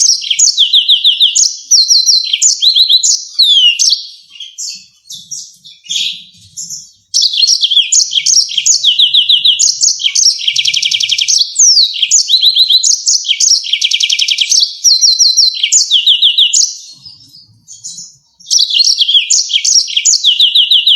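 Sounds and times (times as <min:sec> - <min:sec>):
canary singing trills: 0:00.0 - 0:20.9.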